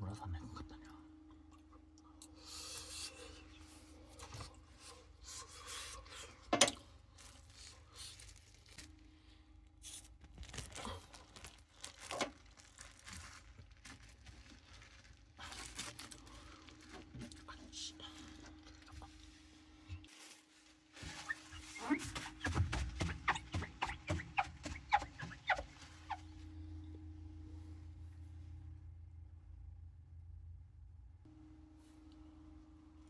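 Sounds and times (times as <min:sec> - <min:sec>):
rustling of things handled: 0:02.6 - 0:26.9.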